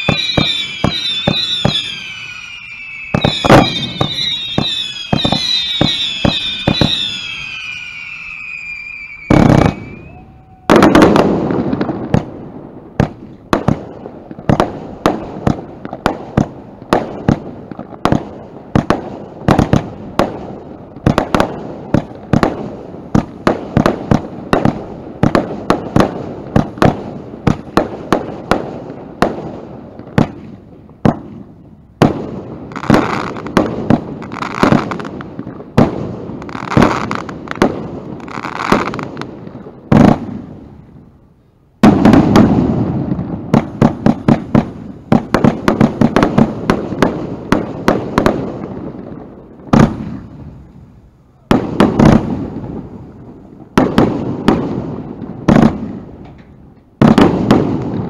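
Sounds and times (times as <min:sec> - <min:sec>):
firework shots: 0:00.0 - 0:41.1, 0:41.8 - 0:58.0.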